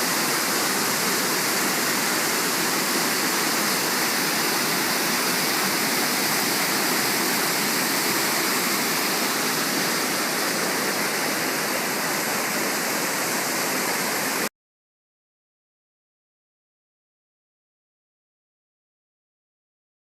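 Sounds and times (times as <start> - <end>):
waterfall roaring: 0.0 - 14.5.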